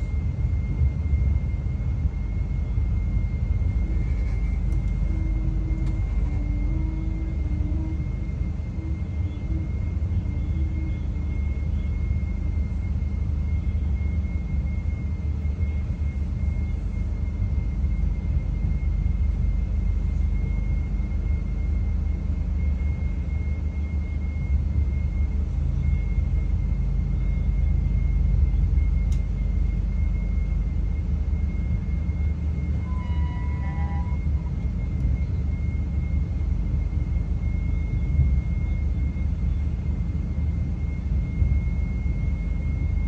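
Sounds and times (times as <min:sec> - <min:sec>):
train rumbling: 0:00.0 - 0:23.3, 0:23.9 - 0:43.0
thin high whine: 0:02.4 - 0:13.8, 0:26.1 - 0:36.6.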